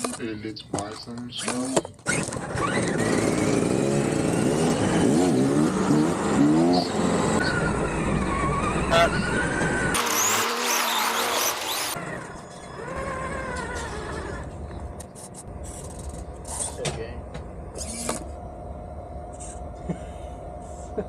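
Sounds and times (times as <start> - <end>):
electric motor whining: 7.6 - 14.5, 17.8 - 18.3.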